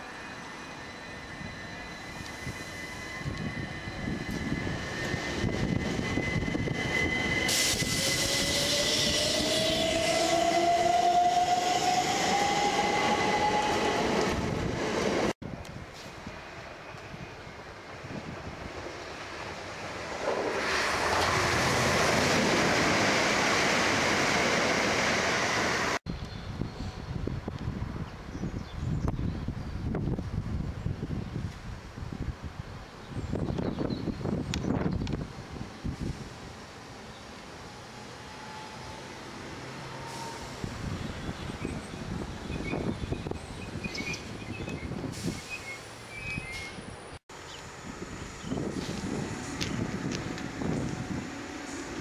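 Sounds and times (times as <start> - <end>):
train wheels rumbling on rails: 0.6 - 26.0, 39.4 - 52.0
wind buffeting microphone: 2.1 - 18.9, 26.1 - 36.5, 40.5 - 45.6, 47.6 - 52.0.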